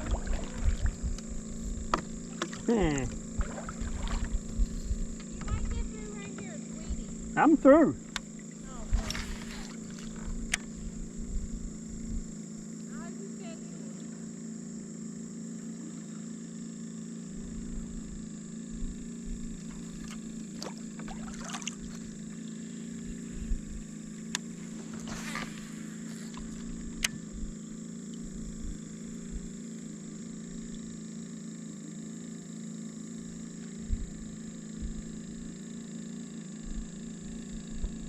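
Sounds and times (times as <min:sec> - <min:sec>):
paddle splashing water: 0:00.0 - 0:01.3, 0:01.9 - 0:04.7, 0:08.3 - 0:10.8, 0:19.6 - 0:22.2, 0:24.4 - 0:27.0
steady low hum: 0:00.0 - 0:38.0.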